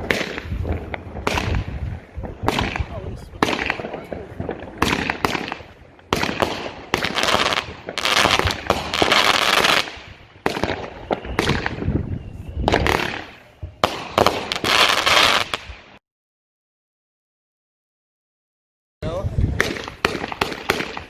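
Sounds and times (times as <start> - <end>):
firework crackle: 0.0 - 16.0
firework shots: 0.0 - 16.0, 19.5 - 21.0.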